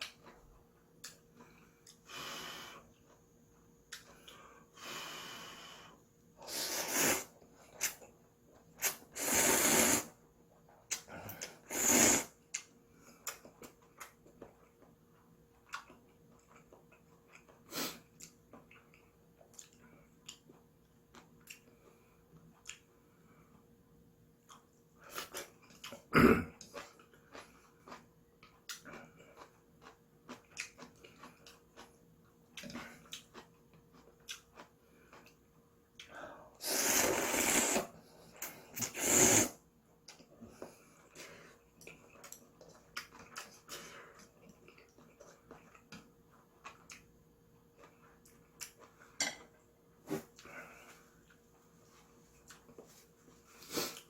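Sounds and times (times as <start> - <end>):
slurping noodles: 6.4 - 8.0, 8.7 - 10.2, 10.9 - 12.4, 36.6 - 39.6
chewing and mouth sounds: 12.5 - 22.9, 24.4 - 36.2, 40.0 - 49.6.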